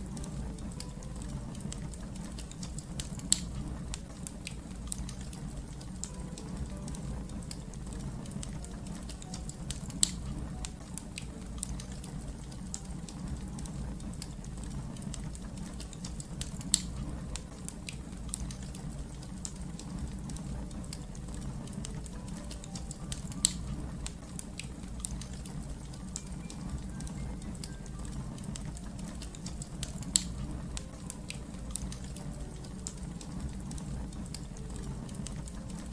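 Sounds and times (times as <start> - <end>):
fire crackling: 0.0 - 35.9
sharp fire pops: 14.0 - 21.0.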